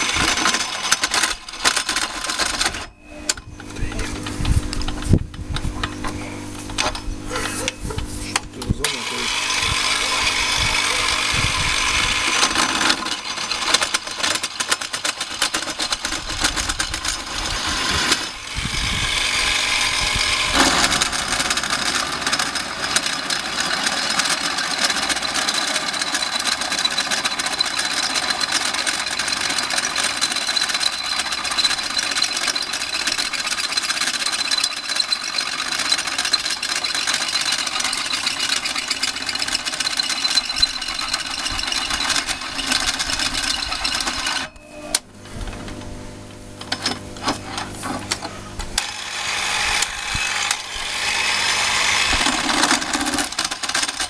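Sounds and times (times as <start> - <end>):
drill motor and gear whine: 0.0 - 3.7, 8.8 - 14.6, 15.9 - 45.1, 48.8 - 54.0
drill bit crackling scraping cut: 8.9 - 44.5, 48.8 - 54.0.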